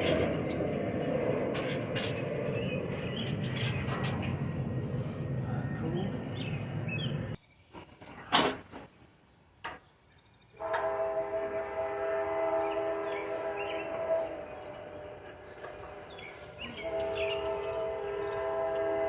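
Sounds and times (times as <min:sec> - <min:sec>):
horn sounding a chord: 0:10.6 - 0:16.2, 0:16.8 - 0:19.0.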